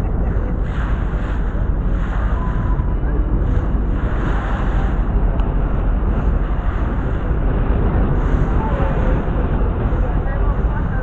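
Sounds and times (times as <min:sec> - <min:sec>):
water rushing: 0:00.0 - 0:11.0
wind buffeting microphone: 0:00.0 - 0:11.0.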